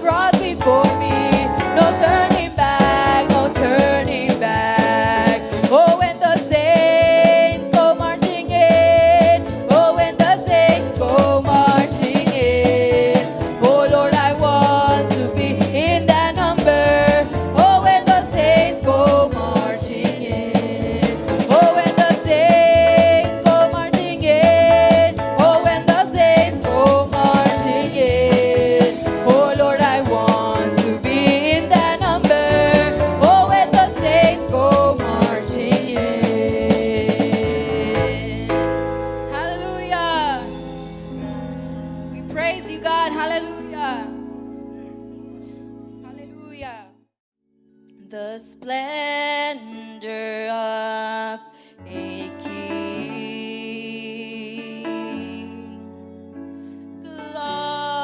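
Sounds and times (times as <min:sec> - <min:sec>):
person singing: 0:00.0 - 0:41.2, 0:48.0 - 0:55.9, 0:57.1 - 0:58.0
band playing upbeat song: 0:00.0 - 0:45.4.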